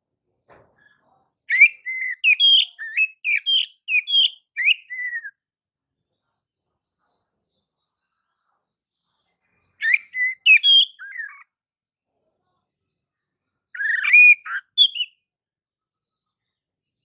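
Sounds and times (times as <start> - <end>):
bird singing whistled notes: 1.5 - 5.3, 9.8 - 11.4, 13.8 - 15.2.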